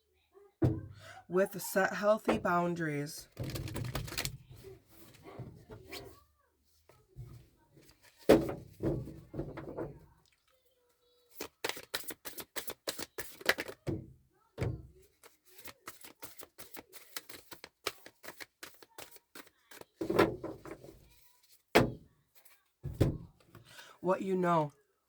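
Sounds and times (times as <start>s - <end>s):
cards shuffling clicks and taps: 3.4s - 4.4s, 11.3s - 14.0s, 15.0s - 20.2s.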